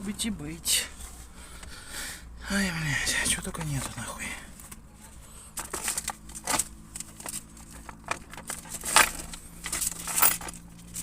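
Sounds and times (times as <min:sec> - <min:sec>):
rummaging through bags: 0:05.6 - 0:11.0.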